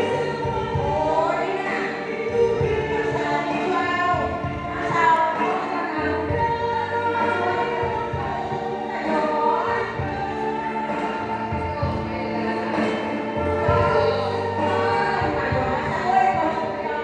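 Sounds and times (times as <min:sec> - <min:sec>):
choir singing: 0:00.0 - 0:17.0.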